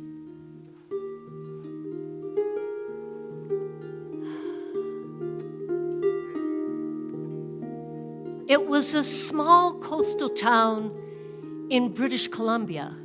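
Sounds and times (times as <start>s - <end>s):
harp plucked notes: 0.0s - 13.0s
soft hiss: 0.0s - 13.0s.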